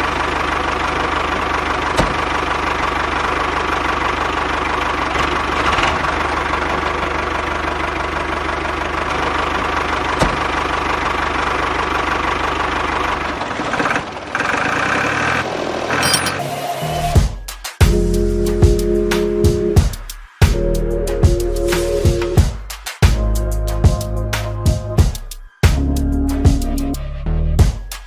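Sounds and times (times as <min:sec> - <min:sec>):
engine running steadily: 0:00.0 - 0:16.6.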